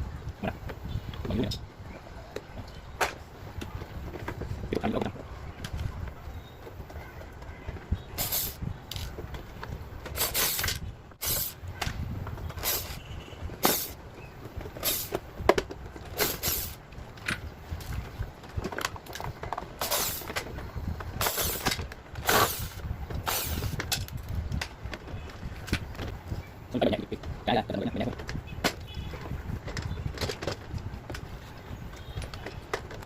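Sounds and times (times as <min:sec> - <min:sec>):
parts knocking and clattering: 0:06.6 - 0:33.0.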